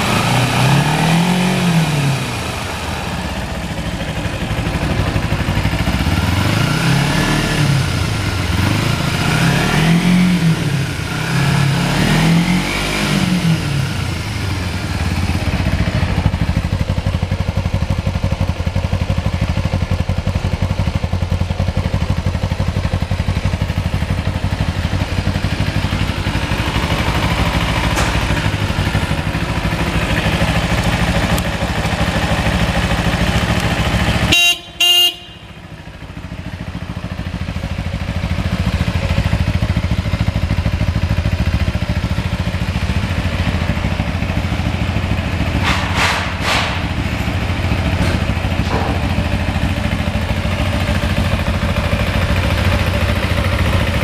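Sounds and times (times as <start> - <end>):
motorcycle engine idling: 2.0 - 9.3, 13.5 - 54.0
motorcycle horn beeps: 34.2 - 36.0.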